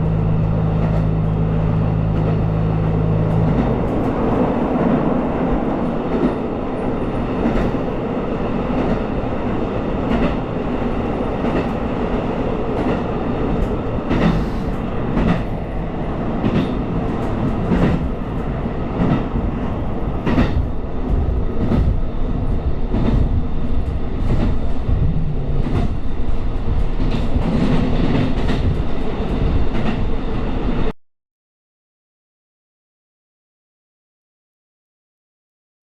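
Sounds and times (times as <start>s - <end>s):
diesel train rumbling: 0.0s - 30.9s.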